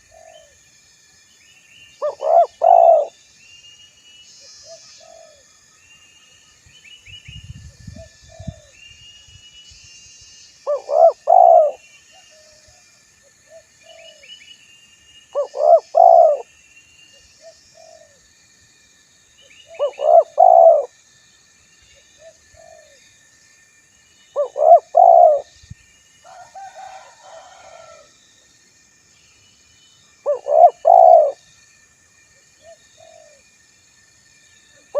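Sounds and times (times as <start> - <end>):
dove cooing: 0.0 - 0.6, 2.0 - 3.1, 4.7 - 5.4, 10.7 - 11.8, 15.4 - 16.4, 19.7 - 20.9, 22.2 - 23.0, 24.4 - 25.5, 30.3 - 31.4, 32.6 - 33.4
small birds chirping: 1.5 - 3.6, 15.2 - 18.1, 19.4 - 20.9, 24.2 - 25.7, 29.4 - 31.4.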